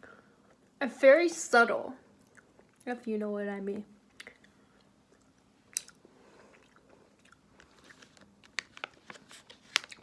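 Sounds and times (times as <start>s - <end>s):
chewing gummy candy: 4.2s - 8.3s.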